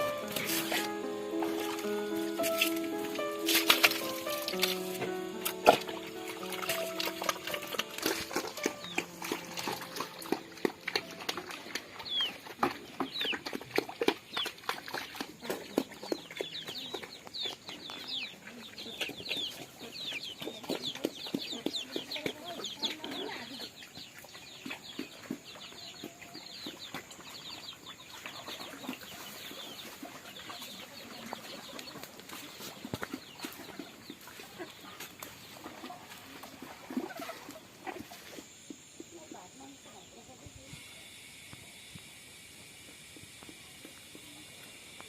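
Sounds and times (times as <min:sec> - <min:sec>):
chicks peeping: 0:00.0 - 0:14.5, 0:15.1 - 0:36.0
chickens clucking: 0:00.0 - 0:23.8, 0:24.6 - 0:38.6.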